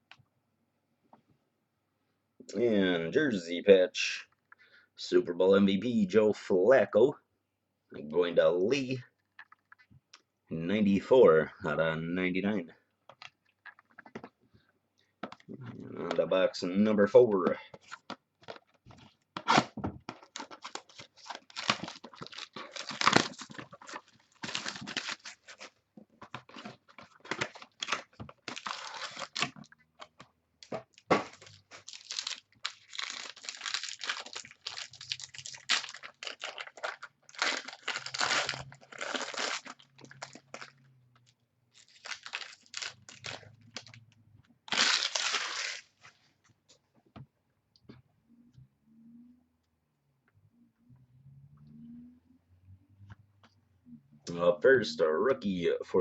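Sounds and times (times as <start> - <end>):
plastic wrap tearing and crinkling: 19.4 - 25.8, 26.4 - 29.7, 30.6 - 44.0, 44.6 - 46.0.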